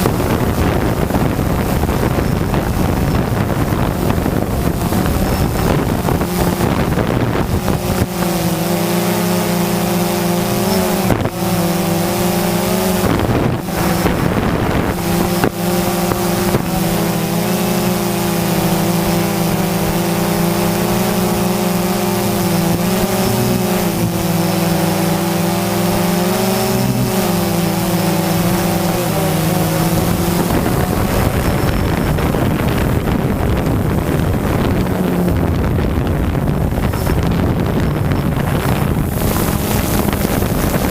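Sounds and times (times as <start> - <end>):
drone propellers humming: 0.0 - 40.9
wind on microphone: 0.0 - 40.9.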